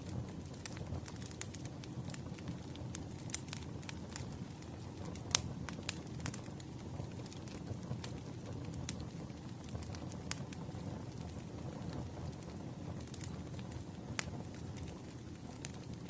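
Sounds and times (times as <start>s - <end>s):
campfire crackling: 0.0s - 16.0s
fire popping and snapping: 0.0s - 16.0s.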